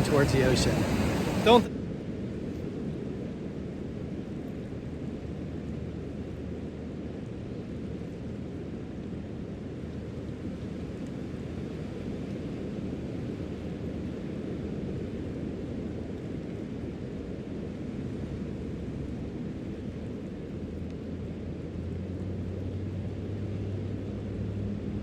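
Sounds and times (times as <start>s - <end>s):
ocean surf: 0.0s - 1.7s
wind: 0.0s - 25.0s.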